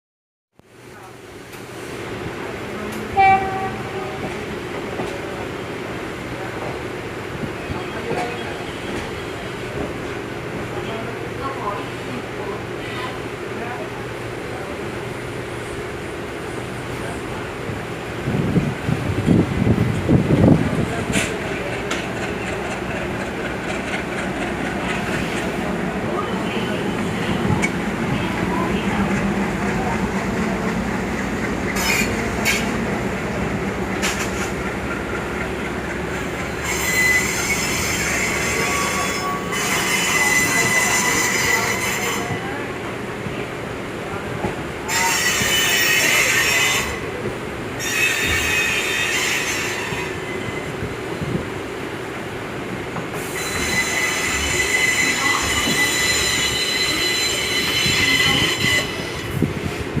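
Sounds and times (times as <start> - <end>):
electric train rumbling: 0.7 - 60.0
steel wheels squealing on rails: 7.4 - 10.2, 20.8 - 33.0, 34.0 - 42.6, 44.8 - 47.2, 47.8 - 50.9, 53.0 - 59.9
train wheels knocking: 21.0 - 25.7
train wheels squealing: 36.5 - 42.3, 53.2 - 59.3.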